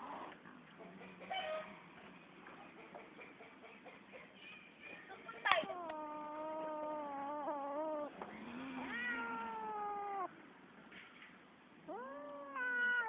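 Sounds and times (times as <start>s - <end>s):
cat yowling: 5.5s - 10.3s, 11.9s - 13.0s.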